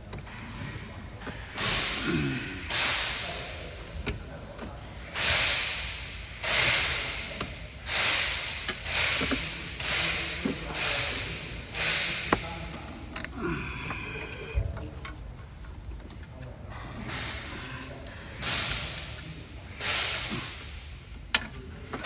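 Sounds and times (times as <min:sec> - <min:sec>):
hissing spray blasts: 0:05.0 - 0:12.8.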